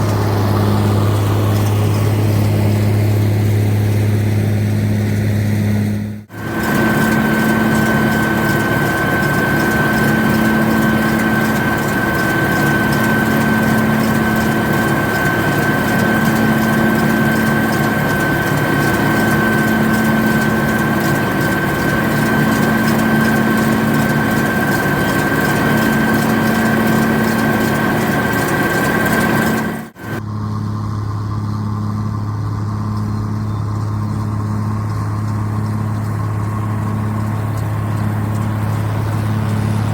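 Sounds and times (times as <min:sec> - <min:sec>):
high machinery whine: 0:00.0 - 0:39.9
tractor diesel engine running: 0:00.0 - 0:39.9.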